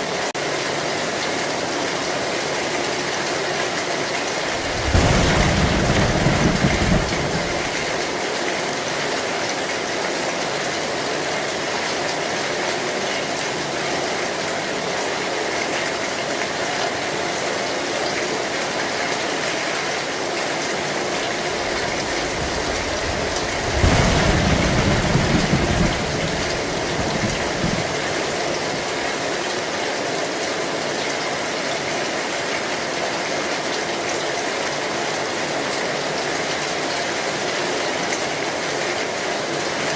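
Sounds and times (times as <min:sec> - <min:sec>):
heavy rain on a tin roof: 0:00.0 - 0:39.9
low rumbles of thunder: 0:04.4 - 0:08.2, 0:21.2 - 0:28.8.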